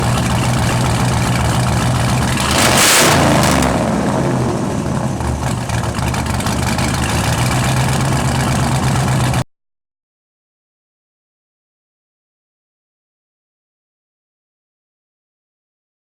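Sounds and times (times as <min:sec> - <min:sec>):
car engine idling and revving: 0:00.0 - 0:09.4.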